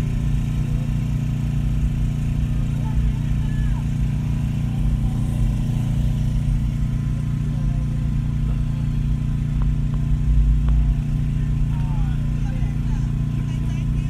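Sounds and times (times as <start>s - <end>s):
car engine drone from inside: 0.0s - 14.0s.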